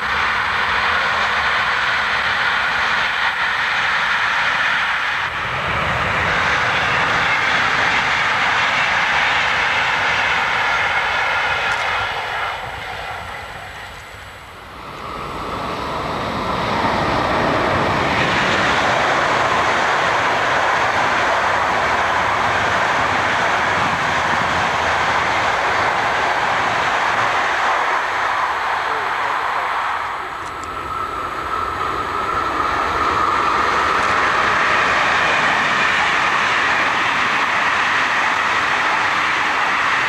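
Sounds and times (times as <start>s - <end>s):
trains passing on rails: 0.0s - 40.0s.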